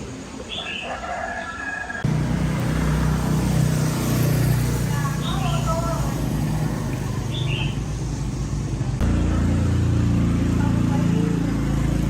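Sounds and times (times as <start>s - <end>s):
small motorbike engine running: 2.0s - 12.0s.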